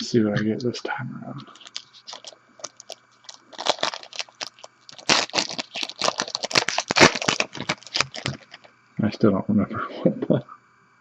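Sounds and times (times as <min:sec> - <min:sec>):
plastic wrapper crinkling and tearing: 0:01.4 - 0:08.7.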